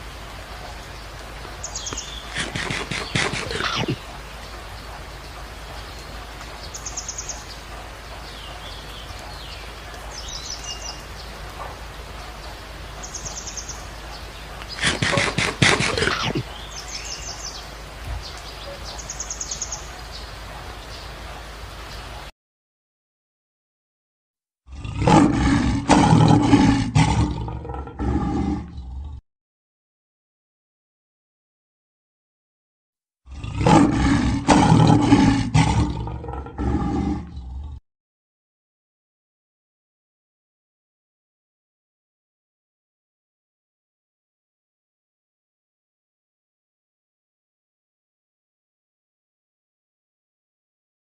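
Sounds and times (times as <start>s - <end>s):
background hiss: 0.0s - 22.2s
small birds chirping: 0.0s - 22.2s
lion roaring: 2.3s - 4.0s, 14.8s - 16.5s, 24.7s - 29.2s, 33.3s - 37.8s.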